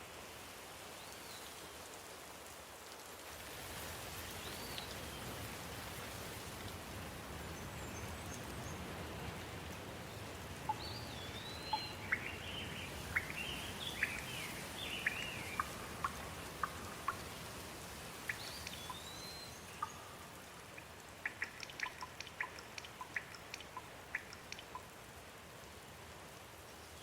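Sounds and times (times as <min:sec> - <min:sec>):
steady rain falling: 0:00.0 - 0:27.0
bird chirping calls: 0:10.1 - 0:17.4, 0:18.2 - 0:24.9.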